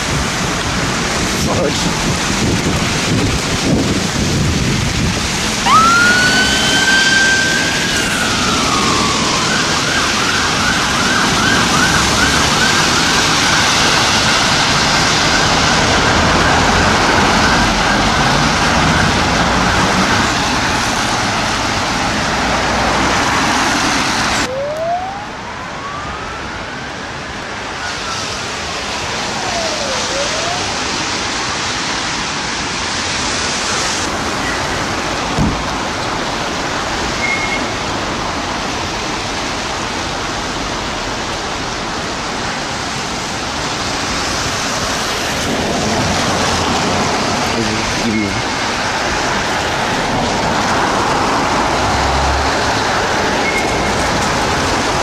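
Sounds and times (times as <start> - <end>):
distant siren wailing: 5.5 - 31.5
siren wail and yelp: 5.6 - 20.4, 24.4 - 31.1.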